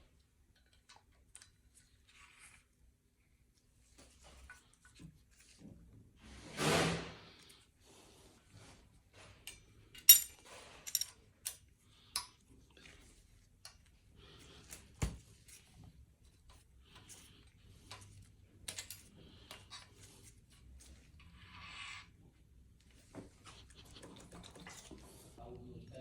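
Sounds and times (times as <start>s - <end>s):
metal tools clinking: 10.0s - 11.2s.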